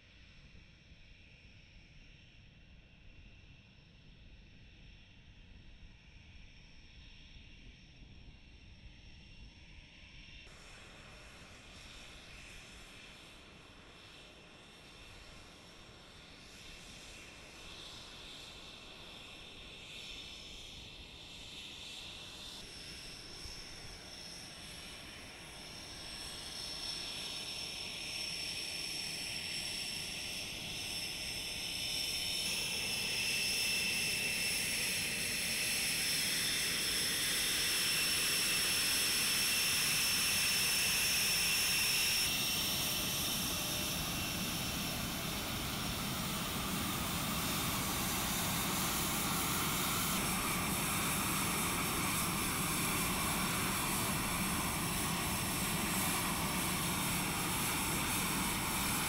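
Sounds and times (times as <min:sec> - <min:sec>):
jet engines whining: 0:22.4 - 0:59.0.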